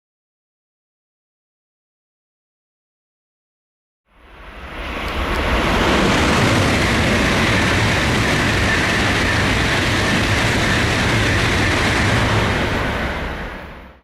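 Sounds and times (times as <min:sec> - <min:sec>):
train passing at high speed: 0:04.1 - 0:14.0.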